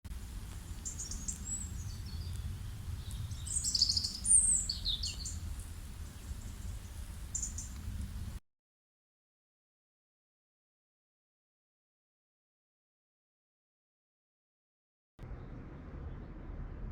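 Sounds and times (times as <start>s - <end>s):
steady low rumble: 0.1s - 8.4s, 15.2s - 16.9s
small birds chirping and whistling: 0.7s - 7.9s.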